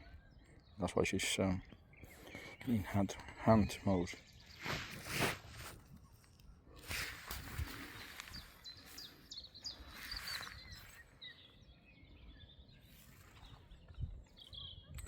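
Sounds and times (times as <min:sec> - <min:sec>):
songbirds chirping: 0:00.0 - 0:15.0
brief rustles: 0:04.6 - 0:08.6.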